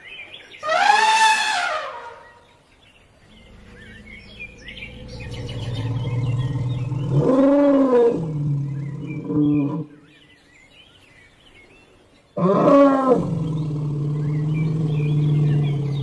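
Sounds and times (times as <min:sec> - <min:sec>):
birds chirping faintly: 0:00.0 - 0:16.0
elephant rumbling and roaring: 0:03.2 - 0:09.9, 0:12.4 - 0:16.0.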